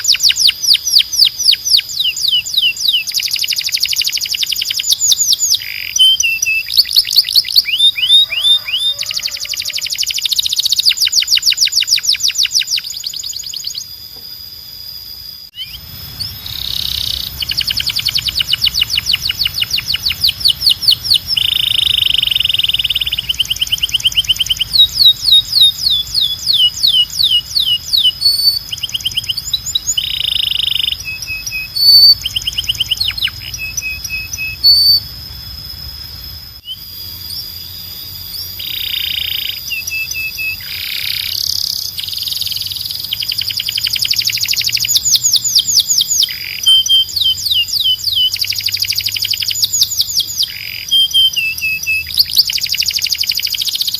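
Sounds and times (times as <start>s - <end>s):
canary singing: 0.0s - 14.2s, 15.4s - 53.9s
faint low hum: 12.5s - 53.9s.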